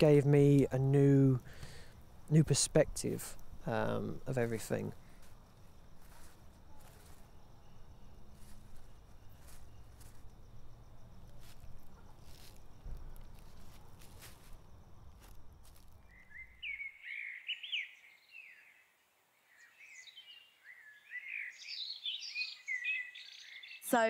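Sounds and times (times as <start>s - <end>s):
birds singing: 15.7s - 24.0s.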